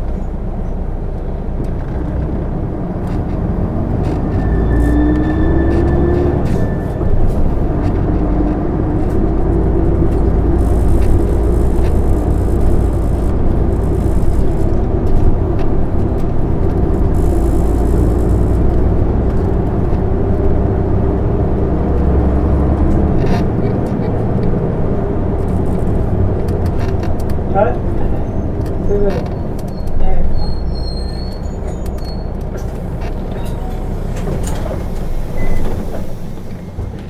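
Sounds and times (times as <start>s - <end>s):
bus engine drone: 0.0s - 37.0s
road noise: 0.0s - 37.0s
hiss: 34.0s - 37.0s.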